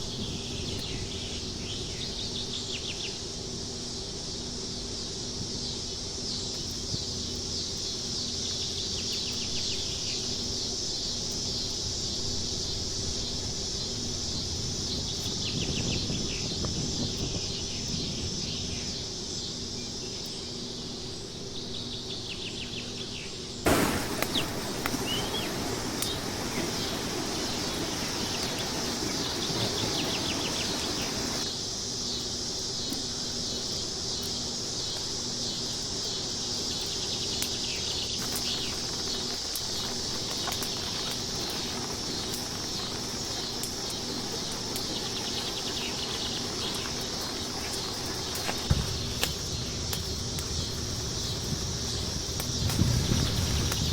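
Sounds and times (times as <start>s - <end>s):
high insect drone: 0.0s - 53.9s
noisy rustle: 0.0s - 53.9s
bird chirps: 23.7s - 31.4s.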